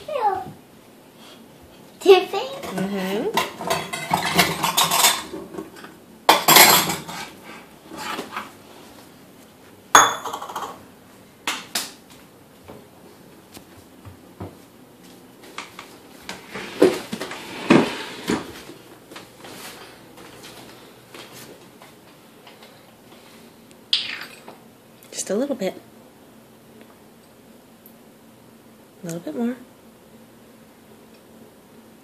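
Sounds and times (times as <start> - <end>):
bowls and dishes clattering: 2.6 - 7.4, 10.0 - 10.8.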